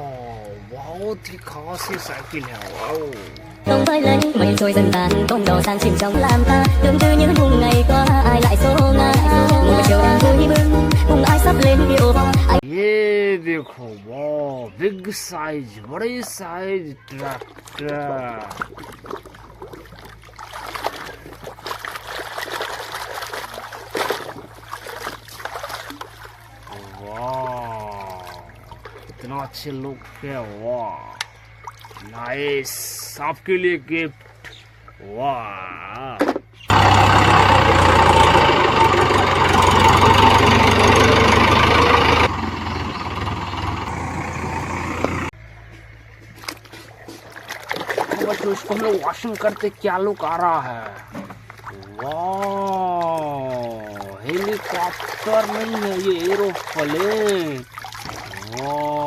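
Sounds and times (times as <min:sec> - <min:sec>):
water trickling and splashing: 0:00.0 - 0:03.7, 0:15.2 - 0:33.2, 0:33.8 - 0:35.0, 0:46.2 - 0:59.0
electric water pump humming: 0:36.7 - 0:45.3, 0:46.4 - 0:59.0.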